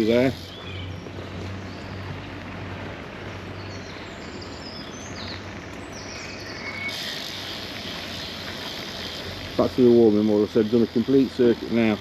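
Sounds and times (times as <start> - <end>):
small birds chirping: 0.0 - 12.0
wind and bicycle rolling noise: 0.0 - 12.0
bright hiss: 6.9 - 9.7.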